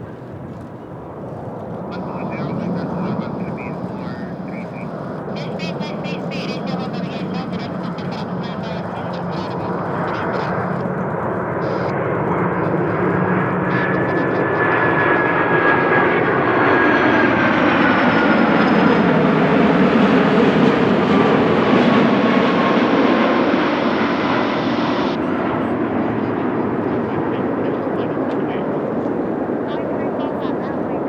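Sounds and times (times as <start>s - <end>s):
jet engines roaring past: 0.0s - 31.0s.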